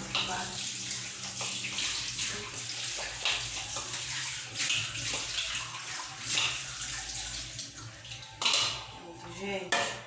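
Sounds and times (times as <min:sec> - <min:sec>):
water splashing over pot lid: 0:00.0 - 0:08.9
kitchen tap running: 0:00.0 - 0:10.0.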